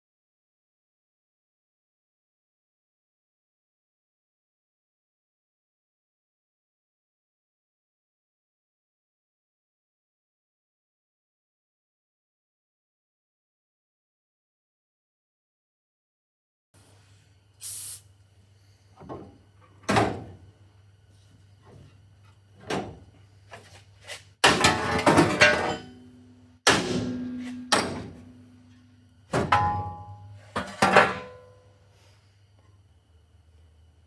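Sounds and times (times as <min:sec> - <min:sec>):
steady low hum: 0:16.8 - 0:34.0
metal clattering: 0:24.4 - 0:28.7
metal clanks and knocks: 0:24.4 - 0:31.6.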